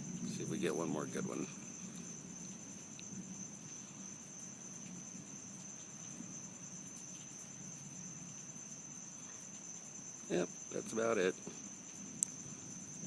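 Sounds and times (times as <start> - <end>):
faint low rumble: 0.0 - 8.4
night insects trilling: 0.0 - 13.0.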